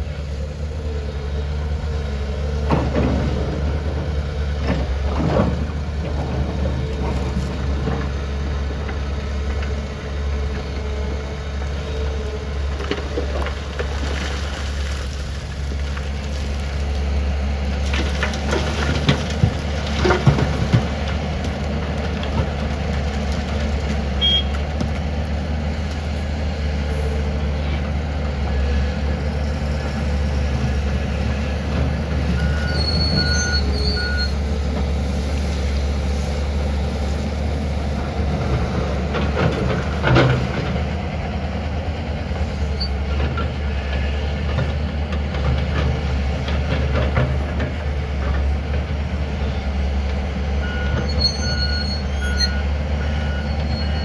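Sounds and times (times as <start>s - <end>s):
diesel engine low drone: 0.0s - 54.0s
excavator bucket clanks and knocks: 17.9s - 21.5s.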